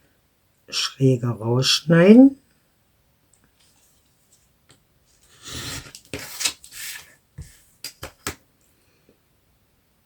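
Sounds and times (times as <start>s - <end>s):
scissors cutting paper: 5.3s - 7.1s.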